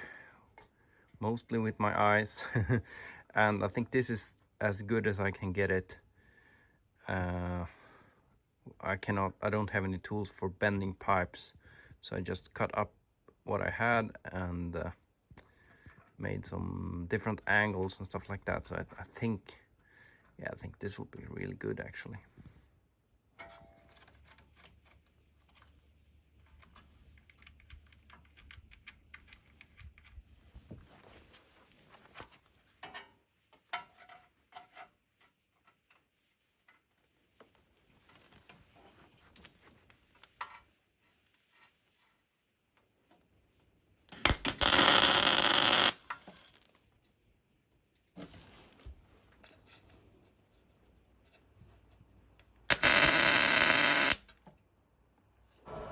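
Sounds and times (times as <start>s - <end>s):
welding arc crackling hiss: 44.2s - 46.0s, 52.7s - 54.2s
welding arc strikes: 44.2s - 46.0s, 52.7s - 54.2s.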